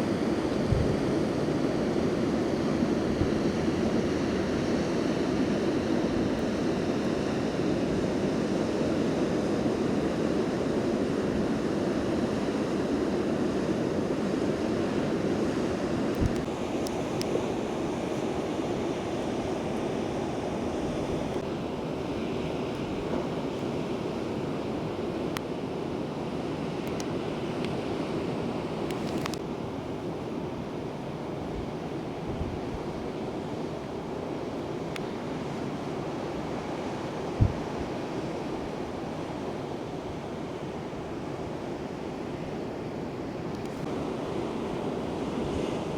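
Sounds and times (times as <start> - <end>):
wind buffeting microphone: 0.0 - 4.4, 31.5 - 33.1
ocean surf rushing: 0.0 - 45.9.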